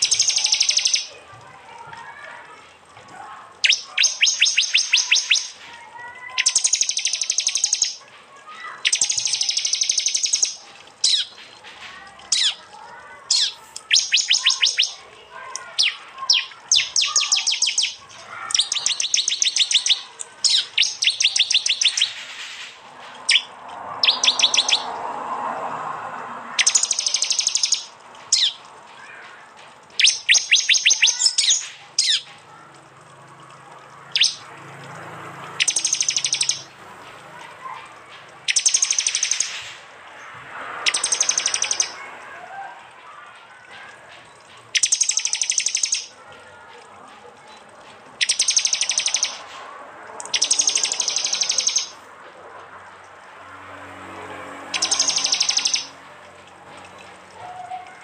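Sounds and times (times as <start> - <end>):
bird chirping rapidly: 0.0 - 1.2, 3.6 - 5.6, 6.3 - 8.1, 8.7 - 11.5, 13.3 - 25.0, 26.6 - 28.7, 29.9 - 32.3, 34.1 - 34.5, 35.5 - 36.7, 38.4 - 39.8, 40.8 - 42.0, 44.3 - 46.2, 48.2 - 49.5, 50.2 - 52.0, 54.7 - 56.0.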